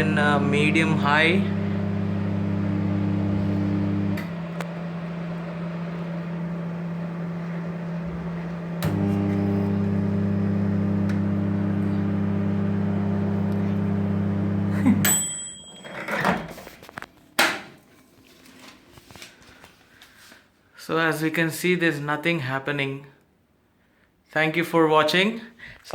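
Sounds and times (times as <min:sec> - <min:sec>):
microwave oven hum: 0:00.0 - 0:15.6.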